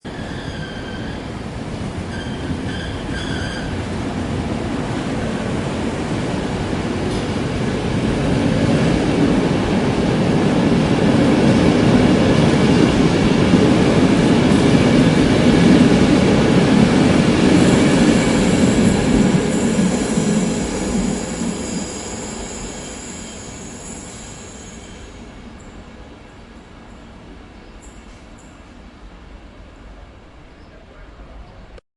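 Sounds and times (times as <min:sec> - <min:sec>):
high wheel squeal: 0:00.1 - 0:01.3, 0:02.1 - 0:03.8, 0:19.5 - 0:25.2
train wheels rumbling on rails: 0:00.1 - 0:30.1.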